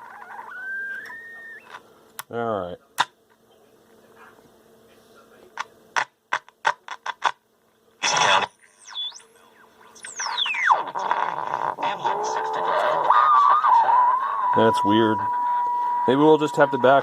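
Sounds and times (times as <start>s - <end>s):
radio loudspeaker crackling: 0.0s - 1.8s, 8.0s - 17.0s
radio whistle squealing: 0.0s - 1.8s, 8.0s - 9.3s, 10.0s - 17.0s
radio static: 8.0s - 17.0s.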